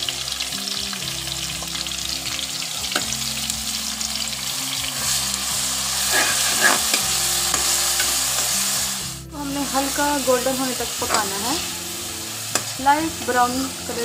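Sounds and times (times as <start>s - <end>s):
food sizzling in hot oil: 0.0s - 14.0s
spoon scraping a steel pan: 6.0s - 8.6s.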